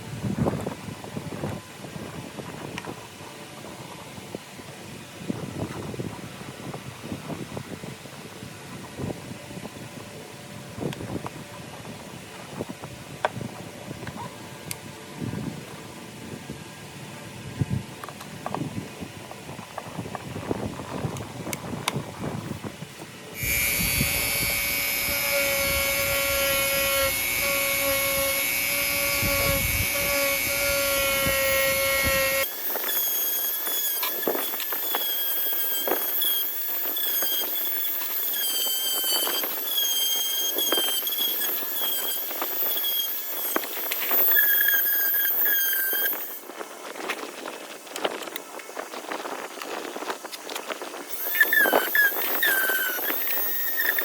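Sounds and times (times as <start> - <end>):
power tool whine and squeal: 23.3 - 46.6, 51.1 - 54.0
wavering squeal with clicks: 23.4 - 46.4, 51.1 - 54.0.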